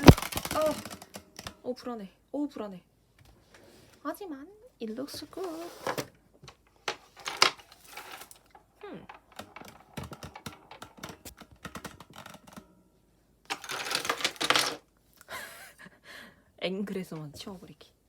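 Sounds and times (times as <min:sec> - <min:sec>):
rustling: 0:05.1 - 0:12.6
objects clicking and knocking on desk: 0:05.8 - 0:12.7, 0:13.5 - 0:14.8.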